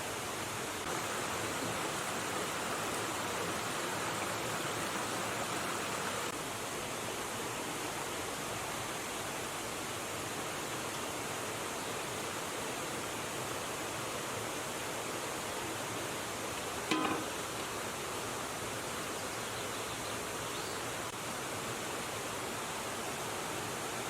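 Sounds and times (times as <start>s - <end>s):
river water flowing: 0.0s - 24.0s.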